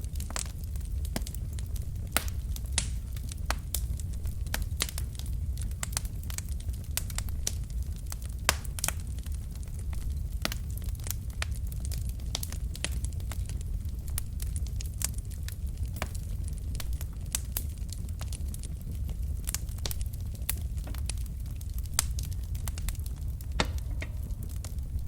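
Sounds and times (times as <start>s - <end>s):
low rumble of flames: 0.0s - 25.0s
wood fire crackling: 0.0s - 25.0s.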